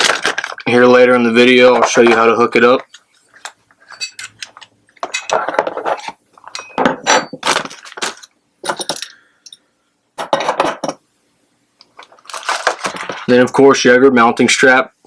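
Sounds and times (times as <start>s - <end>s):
metal pieces clinking and rattling: 3.8s - 9.6s.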